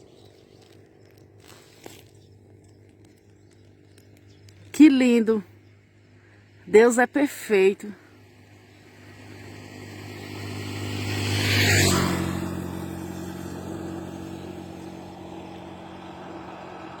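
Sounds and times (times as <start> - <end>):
vehicle passing by: 8.2 - 17.0.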